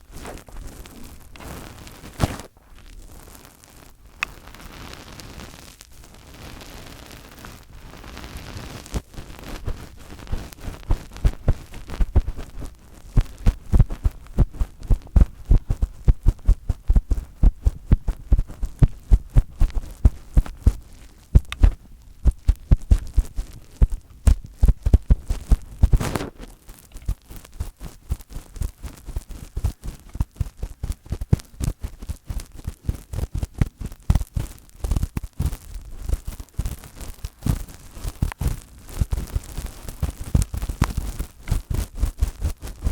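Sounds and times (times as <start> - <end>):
fingertips tapping on microphone: 9.5 - 42.8.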